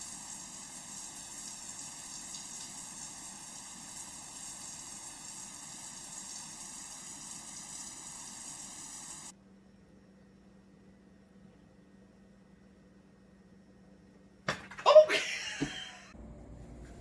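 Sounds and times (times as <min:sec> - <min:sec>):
water spraying from shower: 0:00.0 - 0:09.3
faint steady hum: 0:00.0 - 0:14.5, 0:15.2 - 0:17.0.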